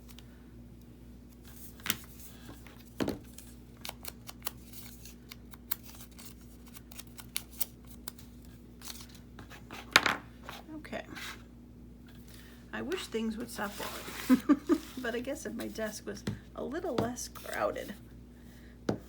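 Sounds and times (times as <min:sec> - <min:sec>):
paper handling clicks: 0:01.3 - 0:09.2
scissors snipping paper: 0:03.8 - 0:08.2.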